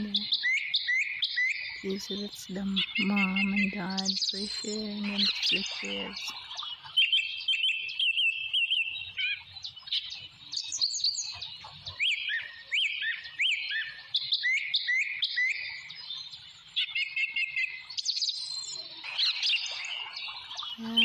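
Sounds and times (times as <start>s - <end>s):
birds chirping and whistling: 0.0s - 21.0s
hooked up-and-down bird notes: 1.6s - 9.4s.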